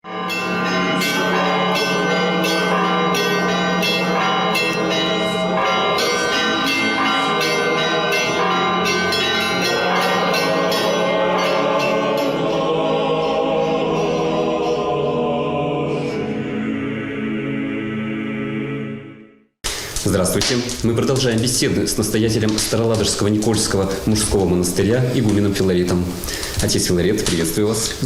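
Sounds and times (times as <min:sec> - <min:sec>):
church bells ringing: 0:00.0 - 0:15.4
choir singing: 0:00.2 - 0:19.4.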